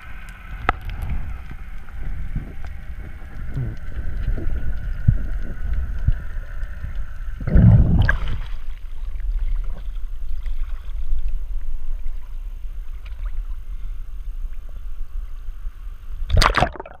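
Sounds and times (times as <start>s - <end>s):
muffled underwater rumble: 0.0s - 17.0s
water rushing burst: 6.9s - 8.8s, 16.3s - 17.0s.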